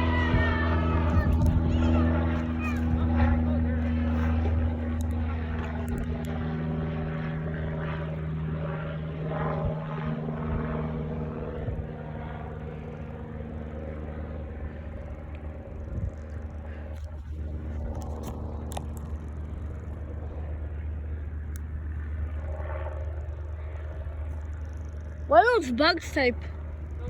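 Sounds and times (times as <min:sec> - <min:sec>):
airplane engine droning: 0:00.0 - 0:27.0.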